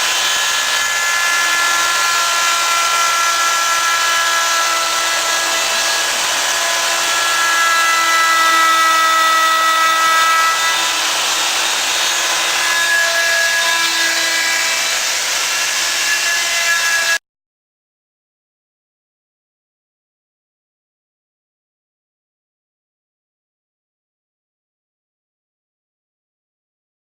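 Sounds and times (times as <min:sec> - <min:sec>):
router spindle whining: 0:00.0 - 0:17.2.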